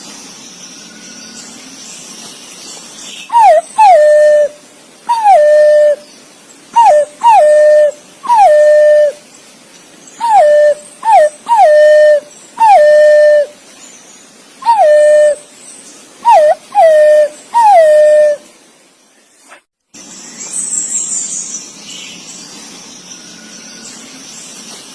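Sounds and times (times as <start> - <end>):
pigeon whistled calls: 3.3 - 6.0, 6.8 - 9.2, 10.2 - 13.5, 14.6 - 15.4, 16.2 - 18.4.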